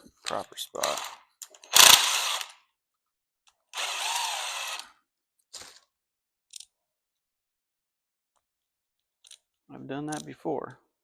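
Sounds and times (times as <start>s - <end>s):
cordless power driver running: 0.8s - 2.6s, 3.7s - 5.0s.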